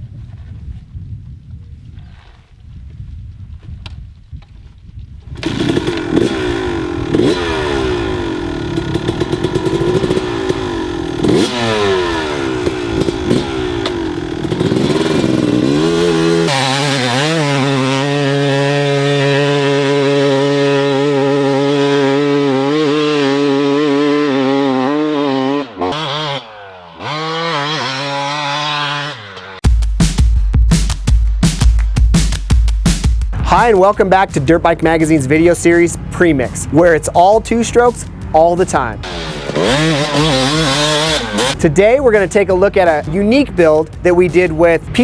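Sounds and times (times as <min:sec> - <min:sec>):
motorcycle engine revving: 0:05.2 - 0:29.7, 0:33.3 - 0:45.0.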